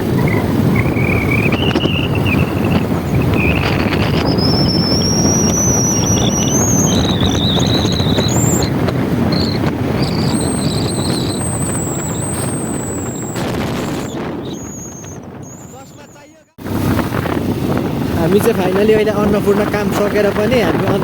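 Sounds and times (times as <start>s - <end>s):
motorbike running: 0.0s - 21.0s
wind buffeting microphone: 0.0s - 21.0s
thin high whistle: 0.2s - 8.7s, 9.3s - 16.2s.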